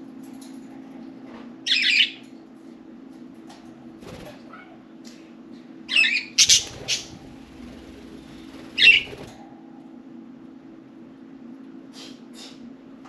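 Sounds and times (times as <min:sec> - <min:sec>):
budgerigars squawking: 0:06.0 - 0:07.2, 0:08.8 - 0:09.1
low hum: 0:06.4 - 0:10.8.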